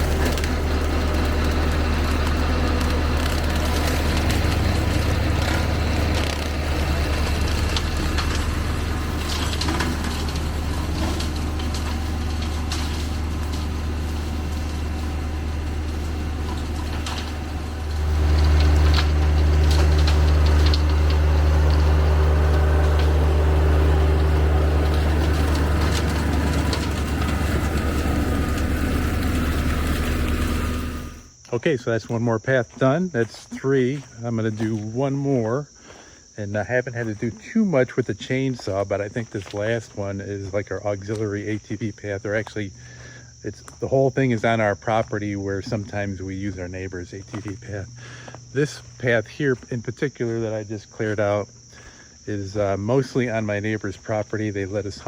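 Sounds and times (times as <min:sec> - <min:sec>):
brush crackling and snapping: 0:00.0 - 0:31.6
tractor diesel engine: 0:00.0 - 0:55.0.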